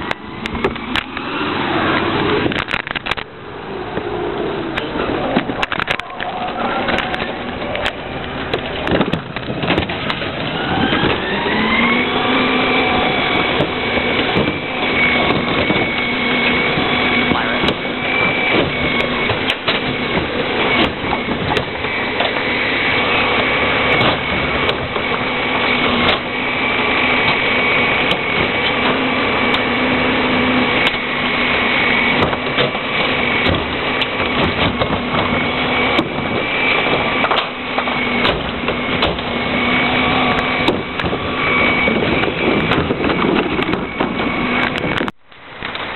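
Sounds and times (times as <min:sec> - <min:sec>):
garbage truck engine whining: 0:00.0 - 0:45.9
knocks and bangs: 0:13.2 - 0:22.5, 0:32.1 - 0:45.0.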